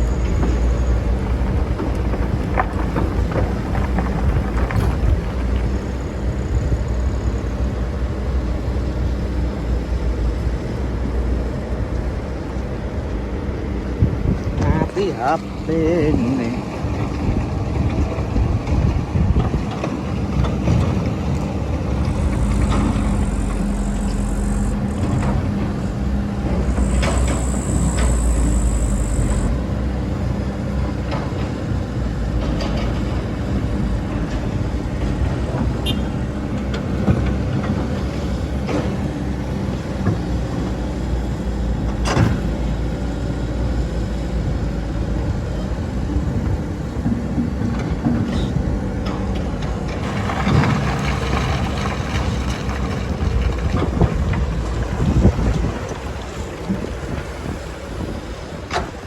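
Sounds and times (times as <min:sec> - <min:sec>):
excavator diesel engine: 0:00.0 - 0:59.0
hydraulic whine: 0:20.4 - 0:29.9.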